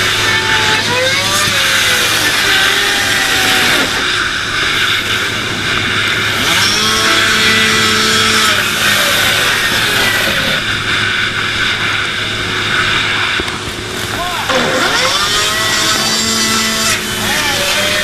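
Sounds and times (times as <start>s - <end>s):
engine-like machine noise: 0.0s - 18.0s
low hum: 0.0s - 18.0s
wavering pitched tones: 14.1s - 17.0s.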